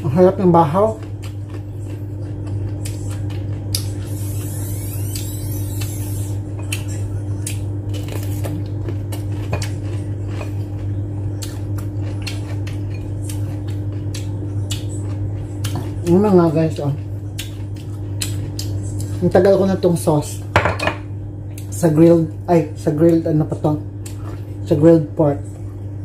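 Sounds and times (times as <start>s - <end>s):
steady low hum: 0.0s - 26.0s
chewing crunchy cucumber: 0.8s - 19.2s.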